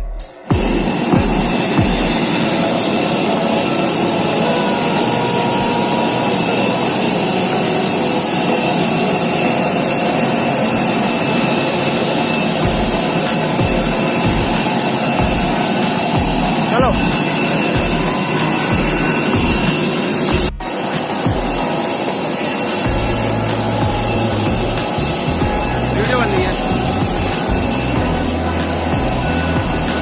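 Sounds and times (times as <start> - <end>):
faint high steady tones: 0.0 - 30.0
jet engines rushing: 0.0 - 30.0
low thumps: 12.6 - 20.6, 22.9 - 30.0.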